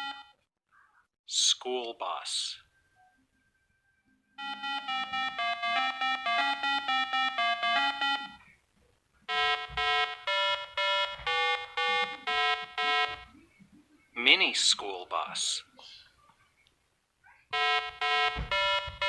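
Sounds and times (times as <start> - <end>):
electronic beeping jingle: 4.4 - 8.4, 9.3 - 13.3, 17.5 - 19.0.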